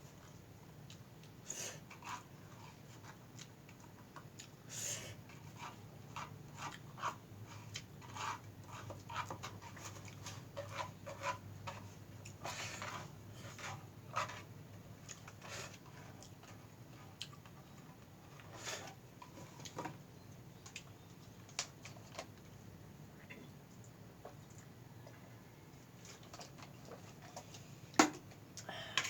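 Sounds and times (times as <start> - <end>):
wet chewing: 0.2 - 4.6, 14.1 - 19.8.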